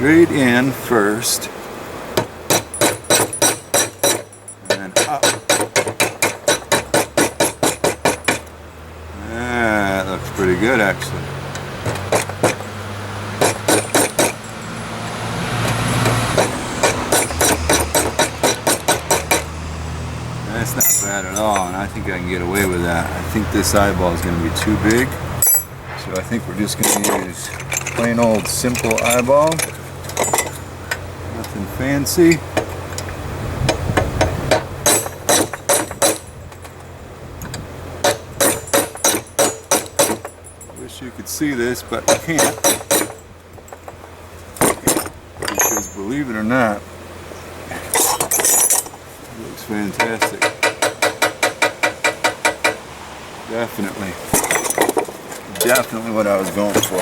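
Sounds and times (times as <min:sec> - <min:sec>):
hammer striking steel on anvil: 0:02.5 - 0:08.4, 0:13.4 - 0:14.7, 0:16.3 - 0:19.5, 0:20.7 - 0:21.8, 0:34.5 - 0:36.3, 0:38.0 - 0:40.4, 0:42.1 - 0:43.2, 0:44.9 - 0:46.1, 0:50.2 - 0:52.8
metal ringing: 0:02.5 - 0:08.5, 0:13.4 - 0:19.6, 0:20.6 - 0:33.1, 0:34.5 - 0:36.8, 0:38.0 - 0:44.0, 0:44.6 - 0:46.4, 0:47.4 - 0:49.0, 0:49.9 - 0:52.8, 0:54.3 - 0:57.0.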